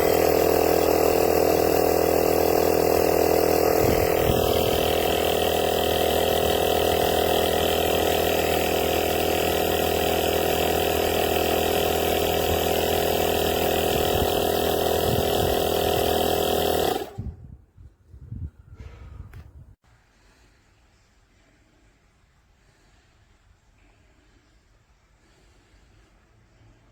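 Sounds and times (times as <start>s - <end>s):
portable air compressor droning: 0.0s - 17.4s.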